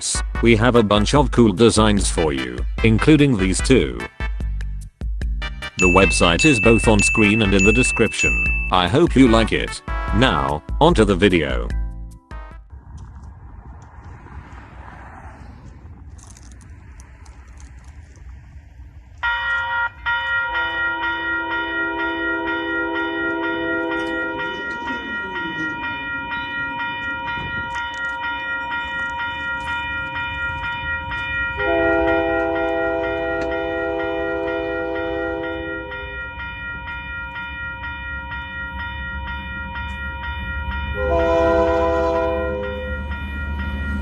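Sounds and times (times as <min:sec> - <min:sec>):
railroad crossing bell ringing: 0:05.8 - 0:09.7, 0:19.1 - 0:44.0
locomotive air horn blasts: 0:09.9 - 0:10.5, 0:19.2 - 0:25.9, 0:31.5 - 0:36.4, 0:40.9 - 0:43.2.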